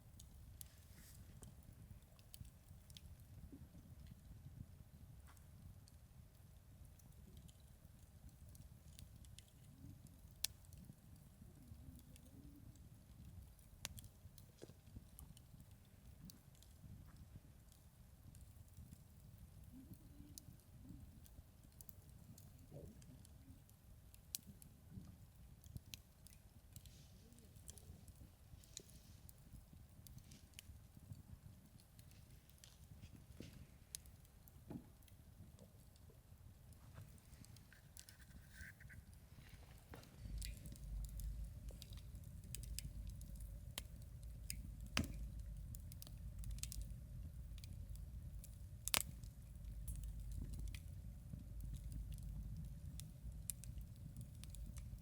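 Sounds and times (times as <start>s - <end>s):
campfire crackling and popping: 0.0s - 55.0s
loud fire pops: 40.3s - 46.9s.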